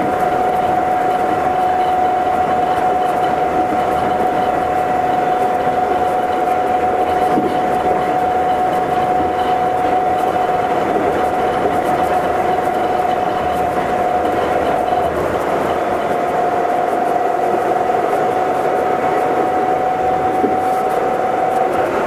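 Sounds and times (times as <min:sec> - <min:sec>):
steady whine: 0:00.0 - 0:22.0
train running rumble: 0:00.0 - 0:22.0.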